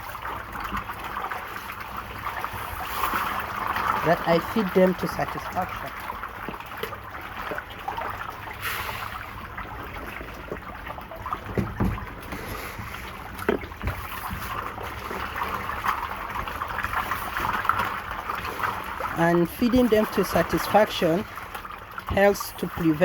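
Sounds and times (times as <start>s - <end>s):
fish splashing in water: 0.0s - 23.0s.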